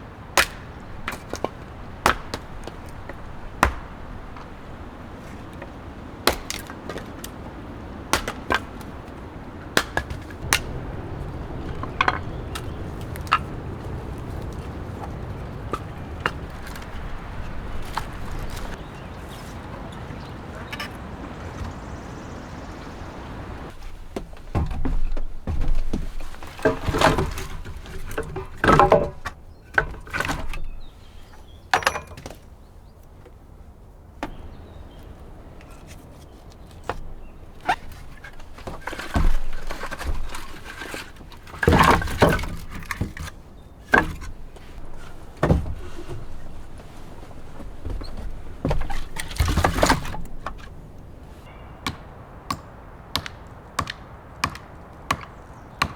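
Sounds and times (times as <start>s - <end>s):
rustling: 0.0s - 31.5s, 34.2s - 55.6s
steady rushing noise: 7.6s - 23.8s
objects thudding and knocking: 9.7s - 19.5s, 23.3s - 30.7s, 36.8s - 50.9s.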